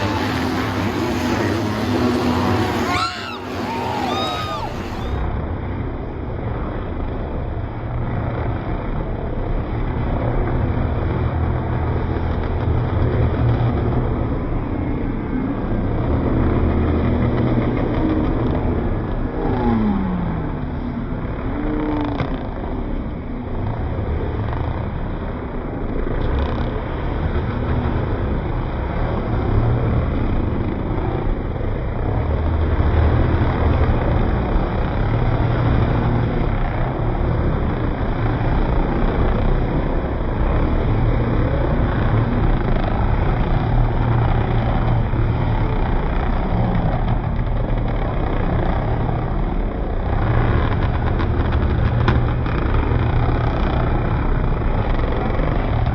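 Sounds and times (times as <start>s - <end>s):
dirt bike engines revving: 0.0s - 5.3s, 23.6s - 55.9s.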